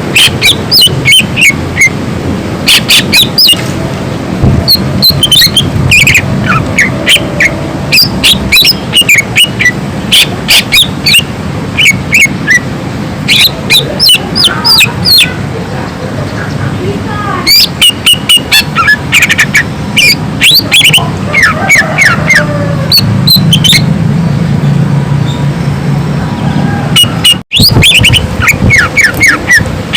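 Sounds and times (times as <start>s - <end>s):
bird singing whistled notes: 4.7s - 11.2s, 27.0s - 29.4s.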